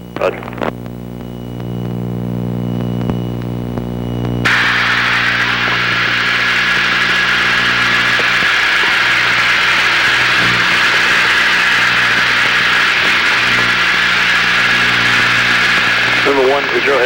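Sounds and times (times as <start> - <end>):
radio static hiss: 0.0 - 17.0
twin piston engines droning: 6.7 - 17.0.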